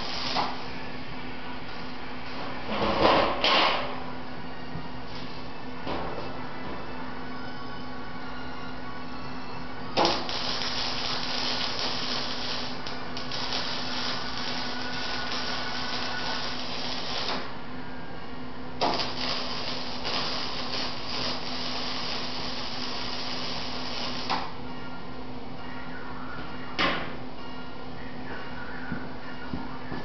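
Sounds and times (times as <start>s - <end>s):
arc welding crackling: 0.0s - 0.8s, 10.0s - 17.7s, 18.8s - 24.6s
steady hum: 0.0s - 30.0s.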